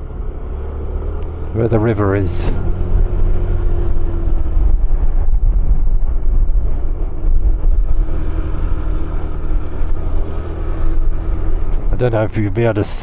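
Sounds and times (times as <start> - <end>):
motorcycle engine running: 0.0 - 13.0
wind rumble on microphone: 2.5 - 11.9.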